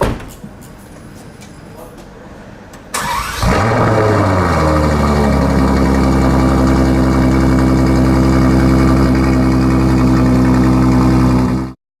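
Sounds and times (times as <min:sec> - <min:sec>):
car engine idling: 0:03.1 - 0:11.8.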